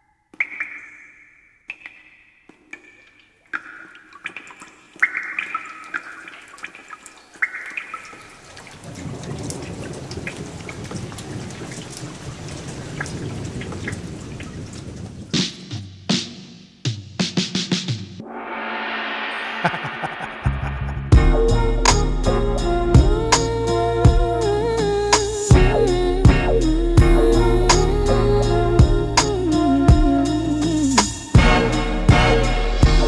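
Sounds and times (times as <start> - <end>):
falling rain: 3.3 - 15.8
thunder rumble: 8.6 - 15.4, 25.5 - 30.2.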